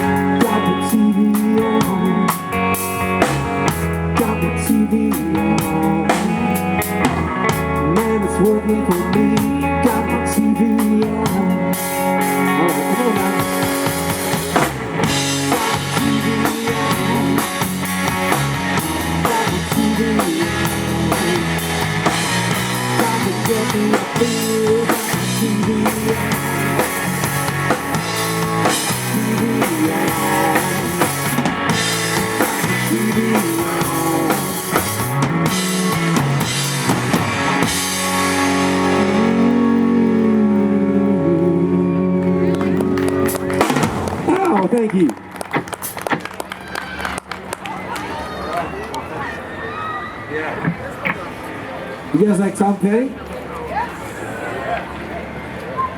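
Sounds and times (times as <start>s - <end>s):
drum kit: 0.0s - 10.1s, 10.8s - 39.9s, 42.7s - 44.7s
electric guitar: 0.0s - 47.7s.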